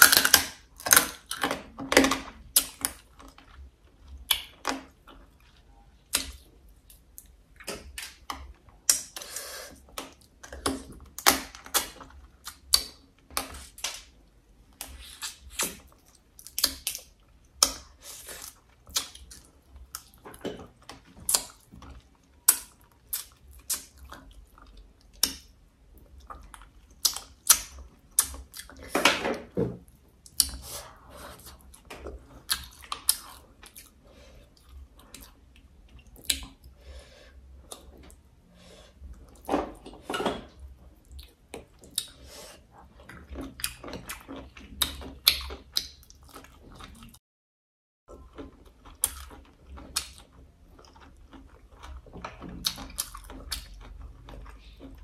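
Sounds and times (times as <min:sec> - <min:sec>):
chewing and mouth smacks: 0:14.8 - 0:28.9, 0:30.2 - 0:36.8, 0:37.6 - 0:38.3, 0:41.0 - 0:47.2, 0:48.1 - 0:55.0
crunchy chewing: 0:48.1 - 0:55.0.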